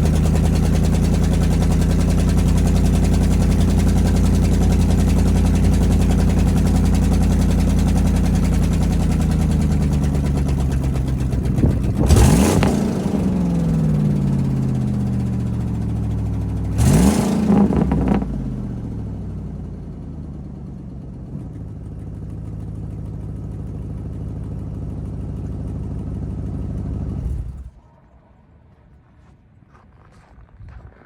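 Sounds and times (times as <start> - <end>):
truck engine revving and idling: 0.0 - 29.3.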